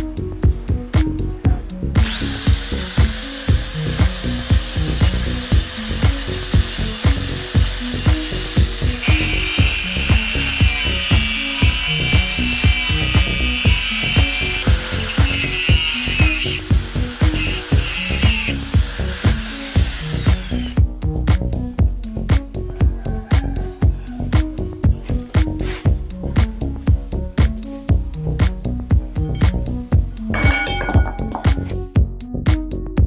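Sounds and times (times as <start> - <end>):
power tool whining: 2.0 - 20.8.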